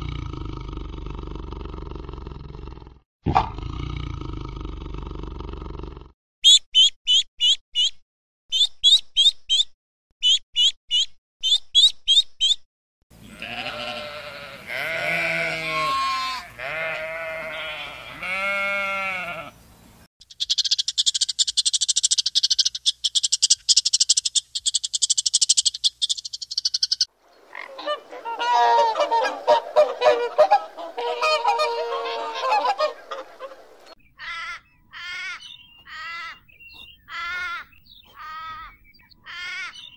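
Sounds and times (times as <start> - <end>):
quick high chirps: 20.3 - 27.1
rising and falling animal calls: 27.4 - 39.9
chorus of overlapping calls: 27.8 - 33.9.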